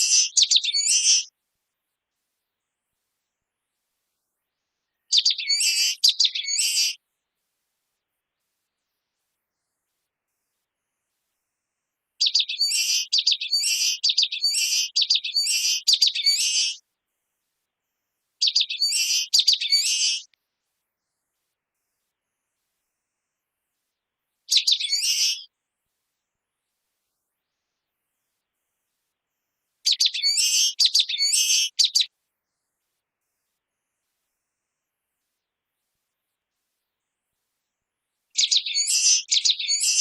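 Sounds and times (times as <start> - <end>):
small bird singing high notes: 0.0 - 1.3, 5.1 - 7.0, 12.2 - 16.8, 18.4 - 20.3, 24.5 - 25.5, 29.9 - 32.1, 38.4 - 40.0.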